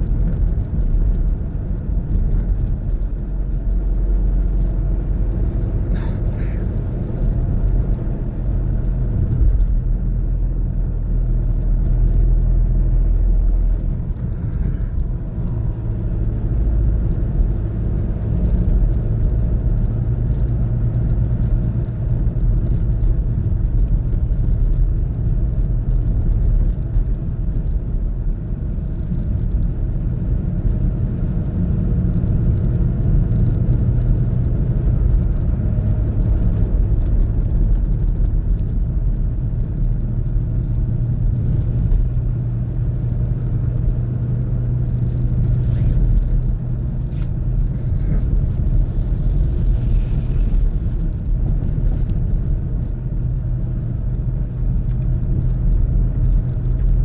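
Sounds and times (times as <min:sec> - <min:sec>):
faint rattles: 0:00.0 - 0:10.0, 0:13.2 - 0:16.4, 0:44.6 - 0:57.0
car engine and road rumble: 0:00.0 - 0:57.0
constant low hum: 0:00.0 - 0:57.0.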